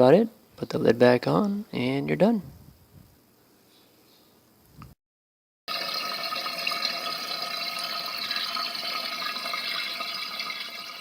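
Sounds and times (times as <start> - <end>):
toilet tank refilling: 5.7 - 11.0.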